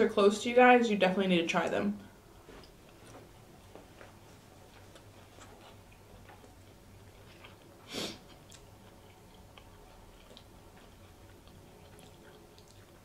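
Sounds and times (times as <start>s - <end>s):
chewing with wet mouth clicks: 4.7s - 13.0s.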